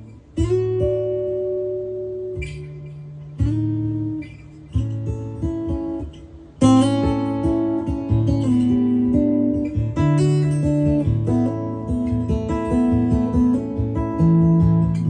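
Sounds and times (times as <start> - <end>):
acoustic-electric guitar strumming: 0.0 - 15.0.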